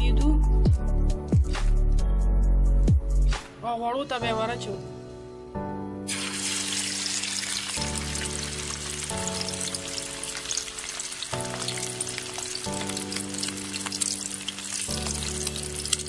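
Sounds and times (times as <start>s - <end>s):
soft background music: 0.0s - 16.0s
meat patty sizzling in hot oil: 6.1s - 16.0s.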